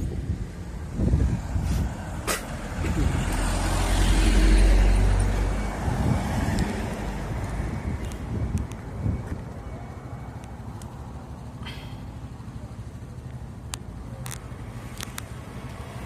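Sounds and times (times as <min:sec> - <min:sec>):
gusty wind buffeting microphone: 0:00.0 - 0:09.6.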